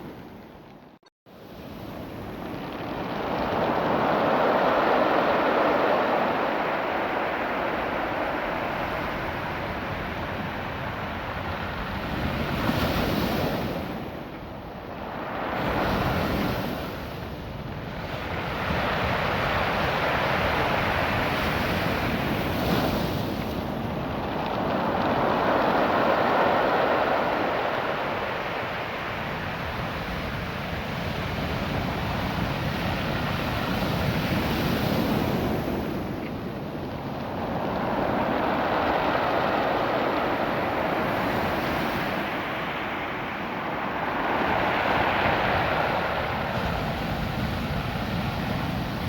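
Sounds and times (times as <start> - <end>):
surf washing over pebbles: 1.4 - 49.0.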